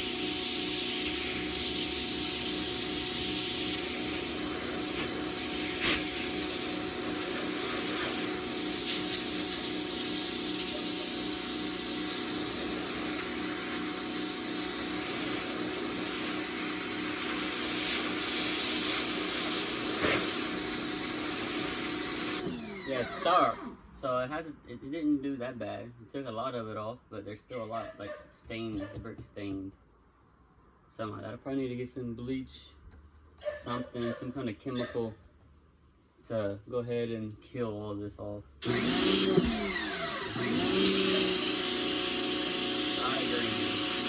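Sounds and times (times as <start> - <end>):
water jet hissing on brick: 0.0 - 22.4, 38.6 - 44.0
pressure washer motor humming: 0.0 - 23.5, 38.6 - 44.0.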